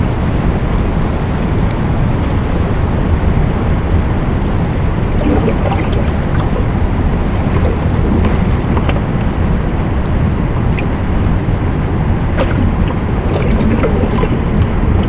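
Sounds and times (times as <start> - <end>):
faint water splashes: 5.1 - 9.2, 12.3 - 15.0
water rushing: 5.1 - 9.3, 12.3 - 15.0.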